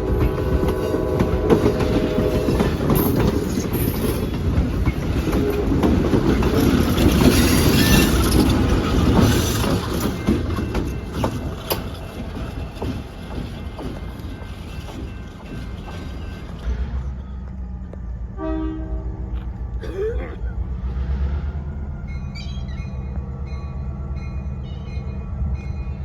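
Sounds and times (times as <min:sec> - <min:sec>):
train horn chord: 0:00.0 - 0:03.2, 0:05.3 - 0:06.0, 0:18.4 - 0:19.5
train wheels clattering: 0:00.0 - 0:18.2.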